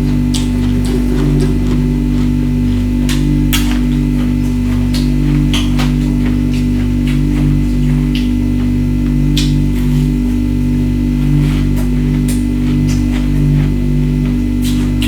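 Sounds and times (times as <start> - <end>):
ice being crunched and chewed: 0.0 - 8.3.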